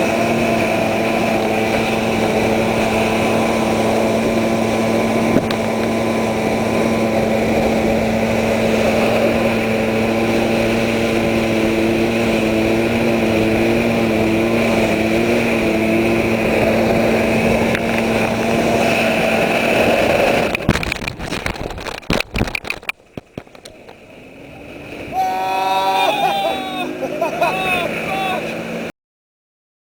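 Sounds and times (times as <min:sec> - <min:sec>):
engine crackles and knocks: 0:00.0 - 0:25.2
outboard engine running hard: 0:00.0 - 0:28.9.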